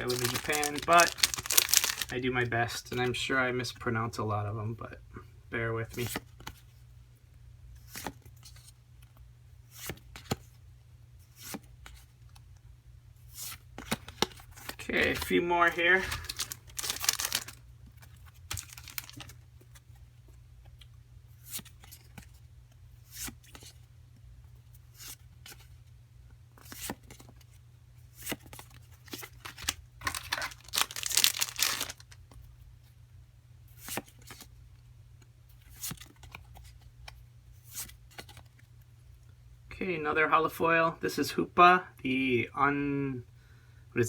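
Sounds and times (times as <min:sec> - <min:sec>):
foil packs tearing and crinkling: 0:00.0 - 0:02.2, 0:15.8 - 0:17.6, 0:18.5 - 0:19.3, 0:29.3 - 0:32.2.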